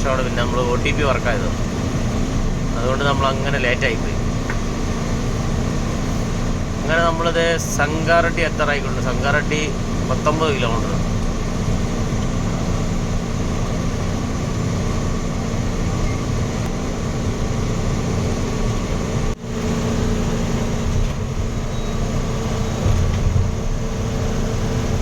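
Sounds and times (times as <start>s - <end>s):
truck engine and road noise: 0.0s - 25.0s.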